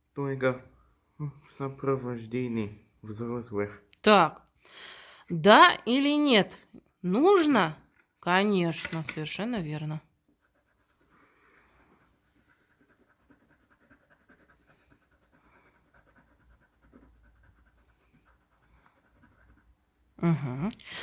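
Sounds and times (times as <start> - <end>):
colouring tool scratching paper: 10.3 - 20.1.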